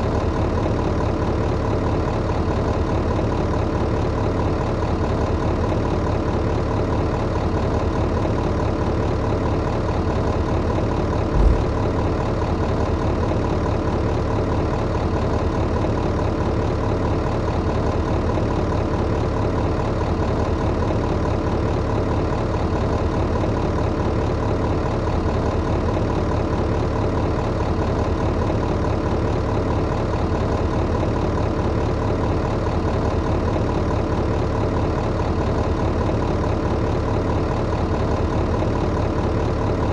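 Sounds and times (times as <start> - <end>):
tractor engine idling: 0.0 - 39.9
low thump: 11.3 - 12.3.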